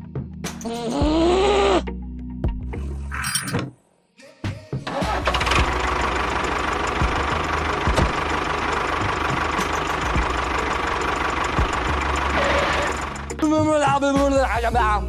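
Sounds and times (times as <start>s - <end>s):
small motor rattling: 5.2s - 13.4s.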